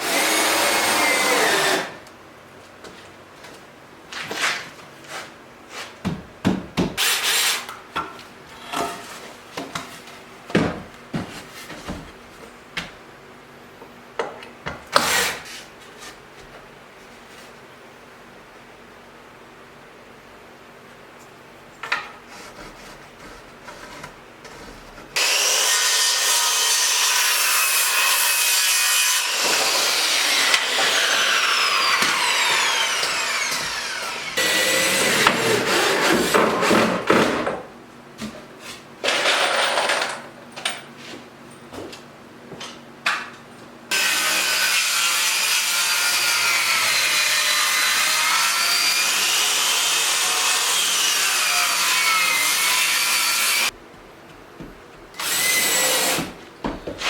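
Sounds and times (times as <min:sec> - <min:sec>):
power saw cutting wood: 0:00.0 - 0:02.0, 0:25.2 - 0:37.0, 0:43.9 - 0:53.8, 0:55.2 - 0:56.4.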